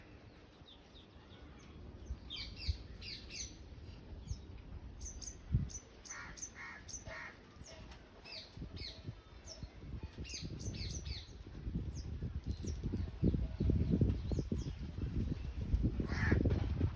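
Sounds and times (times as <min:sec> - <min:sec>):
birds chirping: 0:00.0 - 0:15.0
lower repeated bird calls: 0:05.0 - 0:09.7.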